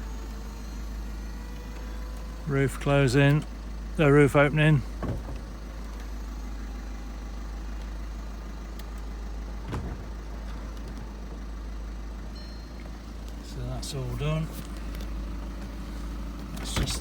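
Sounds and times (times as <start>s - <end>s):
roof mechanism clunk: 3.1s - 13.0s, 16.4s - 17.0s.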